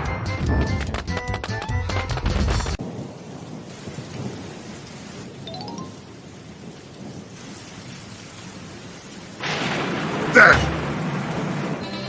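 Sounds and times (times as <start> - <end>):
rain and thunderstorm: 2.6 - 12.0.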